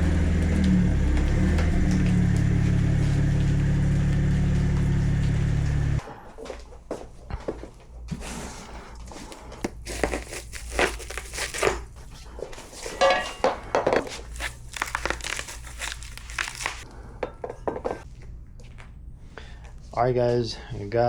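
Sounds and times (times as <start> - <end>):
packaging crinkling and rustling: 9.0 - 16.9.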